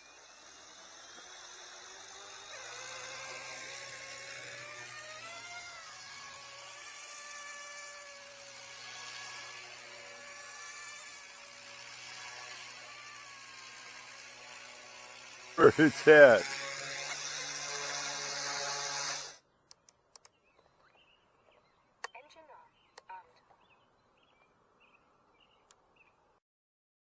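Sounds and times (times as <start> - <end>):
electric model motors whining: 0.0 - 15.6, 16.4 - 19.4.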